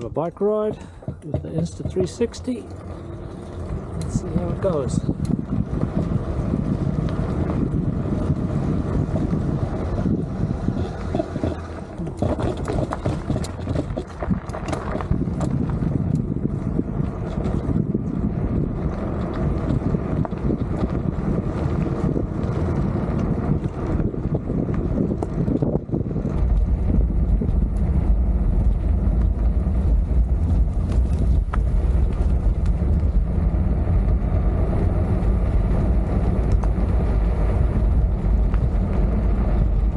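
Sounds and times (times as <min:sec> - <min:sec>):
low road rumble: 0:00.0 - 0:39.9
wind buffeting microphone: 0:00.0 - 0:39.9
clicks and rattles: 0:10.8 - 0:16.3.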